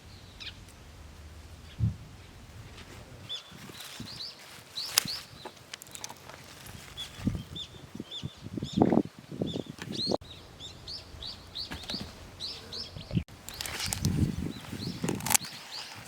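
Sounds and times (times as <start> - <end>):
small bird chirping: 6.7 - 16.0.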